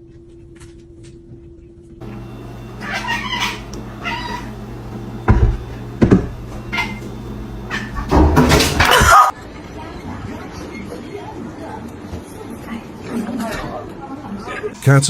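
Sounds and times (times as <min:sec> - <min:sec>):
cat meowing: 0:02.8 - 0:04.5
dull thumps: 0:03.6 - 0:09.3.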